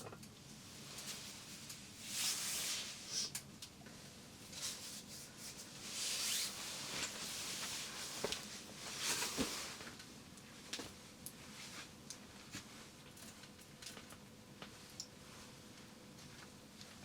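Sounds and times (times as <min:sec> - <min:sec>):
soft rustling swishes: 0:04.5 - 0:09.8.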